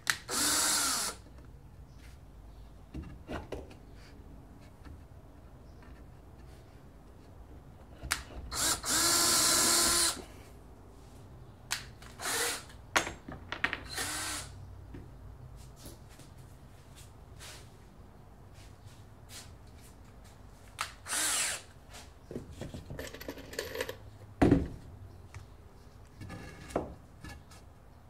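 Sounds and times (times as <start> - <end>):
power drill running: 0.3 - 1.2, 8.6 - 10.2, 12.2 - 12.7, 13.9 - 14.5, 21.0 - 21.7.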